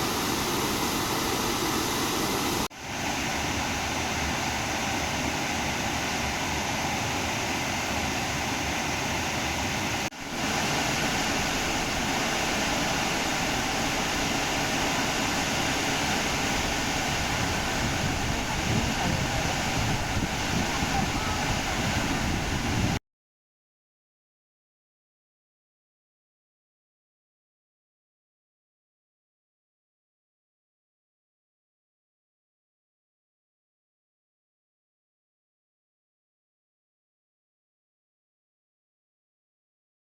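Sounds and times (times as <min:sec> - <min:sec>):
water rushing over rocks: 0:00.0 - 0:23.0.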